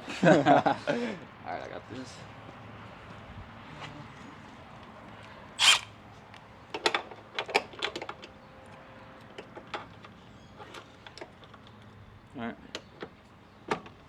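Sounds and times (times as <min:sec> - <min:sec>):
tool rasping scrape: 0:05.6 - 0:05.9.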